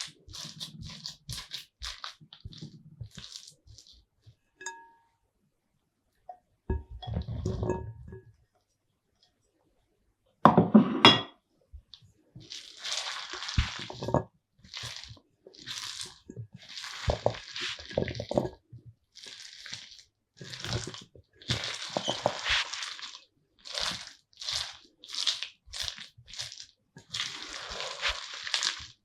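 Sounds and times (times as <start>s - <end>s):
salad scraping and squishing: 0.0s - 4.1s, 11.9s - 29.0s.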